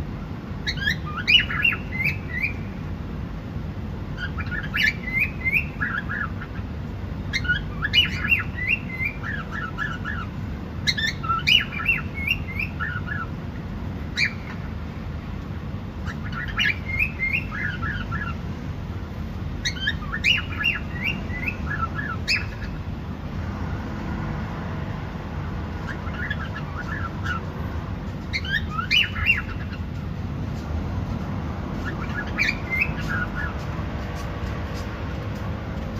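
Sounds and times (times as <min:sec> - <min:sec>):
low background noise: 0:00.0 - 0:35.9
cockatiel chirping and whistling: 0:00.6 - 0:02.6, 0:04.2 - 0:06.6, 0:07.3 - 0:13.3, 0:14.2 - 0:14.6, 0:16.0 - 0:18.4, 0:19.6 - 0:22.8, 0:25.9 - 0:27.5, 0:28.3 - 0:29.8, 0:31.8 - 0:33.6.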